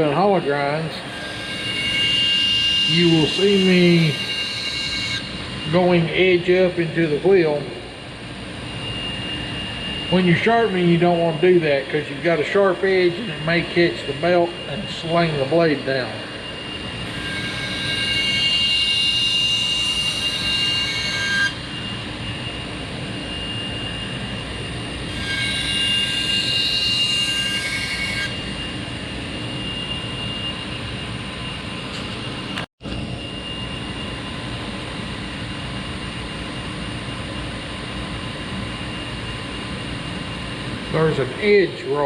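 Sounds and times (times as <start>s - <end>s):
belt grinder running: 9.8s - 30.3s.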